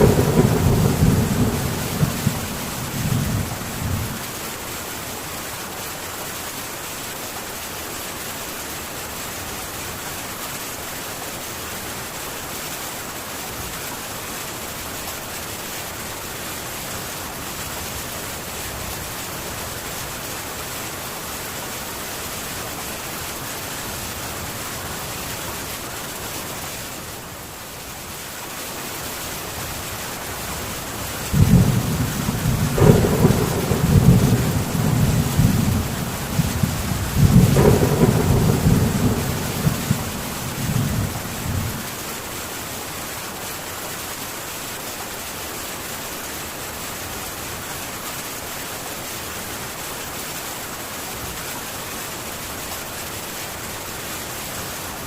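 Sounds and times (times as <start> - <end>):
thunder rumbling: 0.0 - 4.3, 31.3 - 41.9
heavy rain on a tin roof: 0.0 - 55.0.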